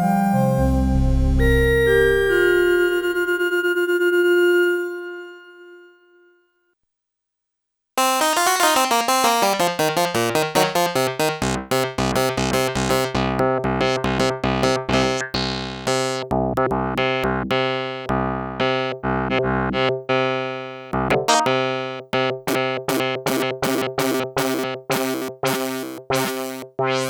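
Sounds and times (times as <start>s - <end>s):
synthesizer plucked notes: 0.6s - 6.0s, 8.0s - 27.0s
pulsing synth bass: 8.0s - 27.0s.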